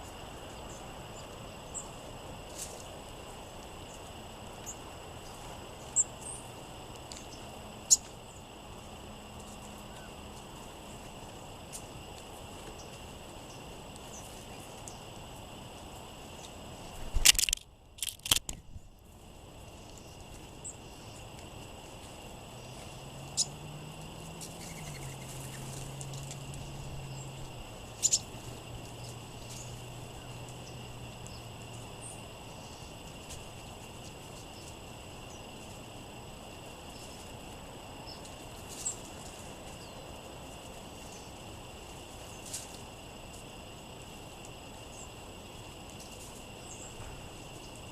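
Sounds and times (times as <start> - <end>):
wind noise: 16.8 - 19.1
sharp bird chirps: 24.4 - 25.7, 28.0 - 28.3.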